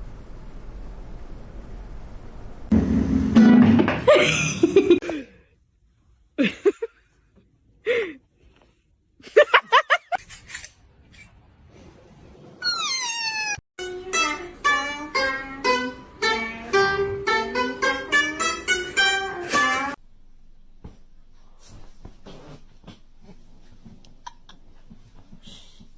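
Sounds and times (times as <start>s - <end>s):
plucked-string music: 13.8s - 20.0s.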